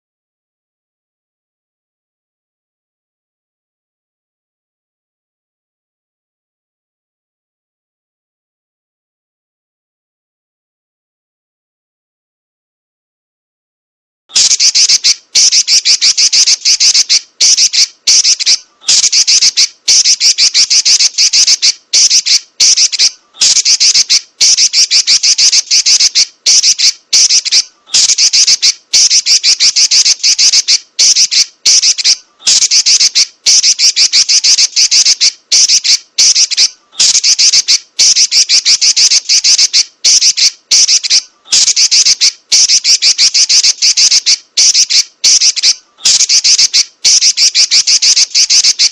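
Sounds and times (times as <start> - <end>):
bird chattering in high rolls: 14.4 - 48.9.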